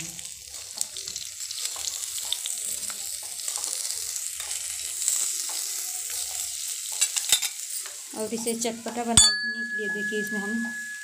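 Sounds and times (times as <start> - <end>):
food sizzling in frying oil: 0.0 - 11.0
metal spatula scraping a pan: 4.4 - 9.2.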